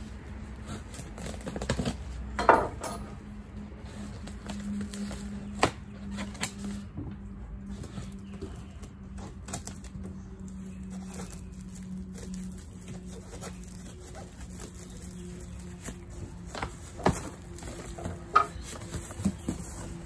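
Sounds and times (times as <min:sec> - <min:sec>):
plastic wrap crinkling and tearing: 0:08.8 - 0:20.0.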